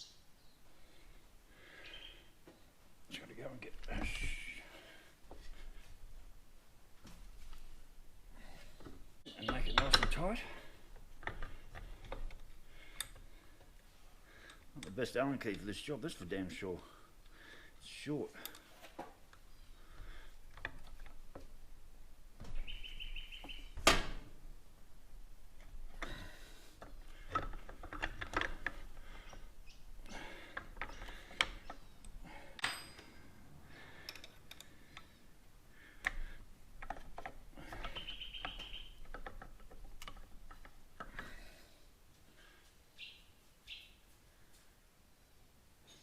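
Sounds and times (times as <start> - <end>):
bird trilling: 22.6 - 23.8, 37.8 - 39.0, 43.0 - 44.0
metal clicks of hand tools: 34.0 - 35.1.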